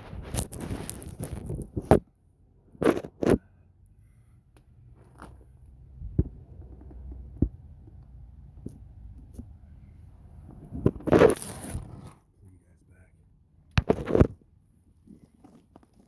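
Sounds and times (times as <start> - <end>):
knocks and thumps: 6.0 - 8.0.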